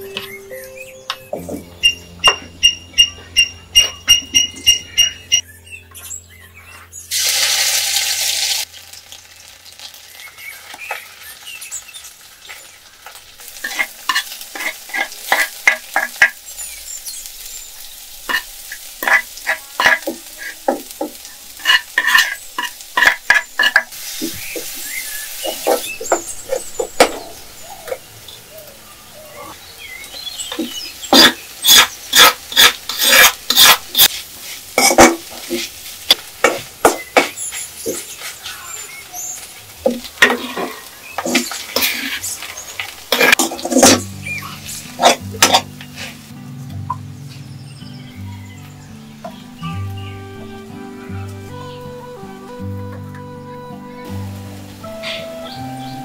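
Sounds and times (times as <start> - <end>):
food sizzling in a wok: 7.1 - 28.4, 29.6 - 46.4, 54.0 - 56.0
metal spoon clinking and scraping: 13.6 - 16.4, 18.3 - 20.6, 21.6 - 23.9, 31.1 - 34.2.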